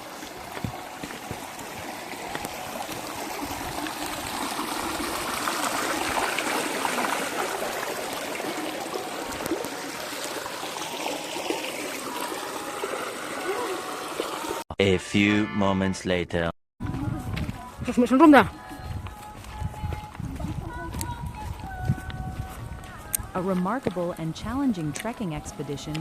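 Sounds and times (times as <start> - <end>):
stream of water flowing: 0.0 - 14.6.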